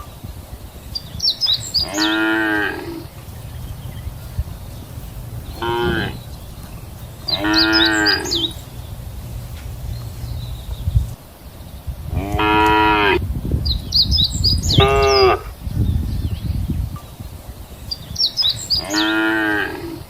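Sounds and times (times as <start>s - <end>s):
high chirping: 0.0s - 20.0s
cow mooing: 1.8s - 8.8s, 12.1s - 13.2s, 18.8s - 20.0s.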